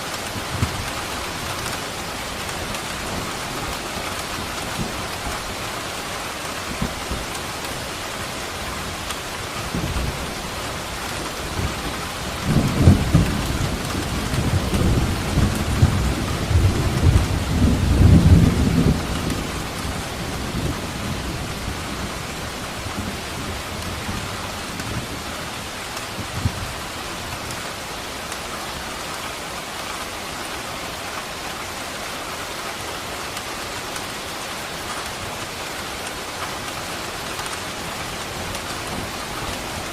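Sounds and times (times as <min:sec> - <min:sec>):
heavy rain: 0:00.0 - 0:39.9
thunder rumbling: 0:09.6 - 0:25.3.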